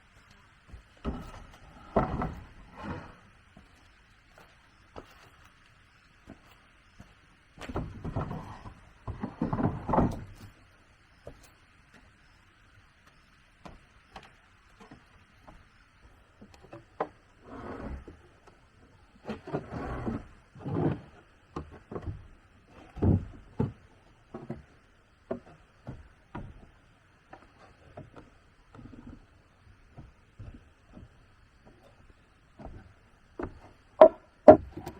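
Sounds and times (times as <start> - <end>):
wooden knocks and scraping: 0.7 - 3.8, 7.6 - 10.6, 19.2 - 34.9.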